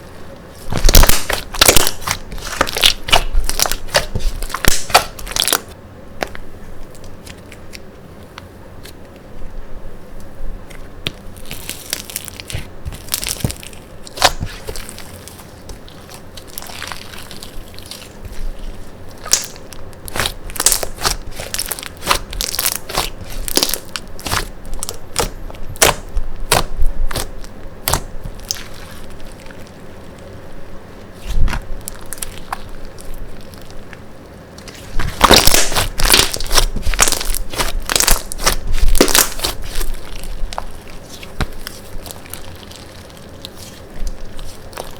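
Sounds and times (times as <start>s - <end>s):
slime crackling and popping: 0.6s - 7.8s, 11.1s - 30.3s, 31.0s - 44.9s.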